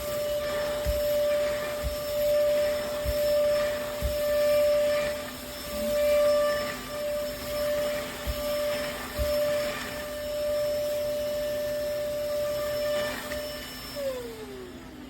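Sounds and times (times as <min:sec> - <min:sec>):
vacuum cleaner motor whine: 0:00.0 - 0:15.0.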